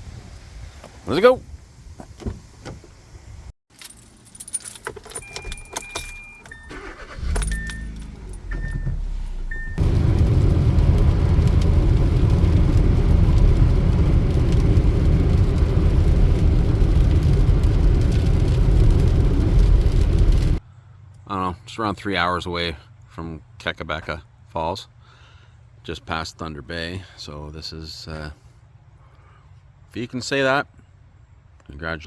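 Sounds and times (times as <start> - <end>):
car engine and road noise: 0.0 - 21.2
keys jingling and clicking: 3.7 - 9.6
car engine starting: 3.9 - 20.6
car warning chime beeping: 5.1 - 9.8.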